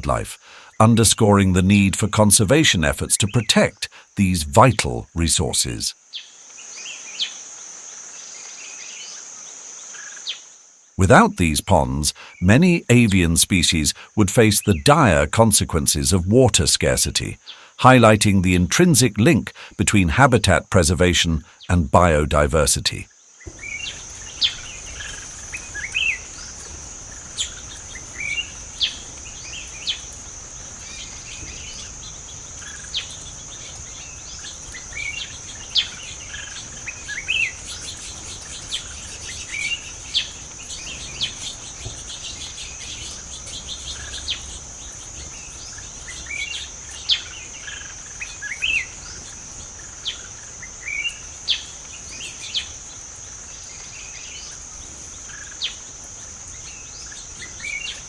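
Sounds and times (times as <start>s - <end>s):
bird chirps: 23.4s - 53.0s, 56.6s - 58.0s.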